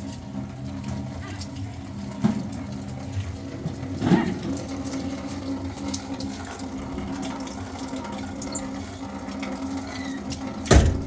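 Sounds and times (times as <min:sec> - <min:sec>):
water rushing: 0:03.0 - 0:11.0.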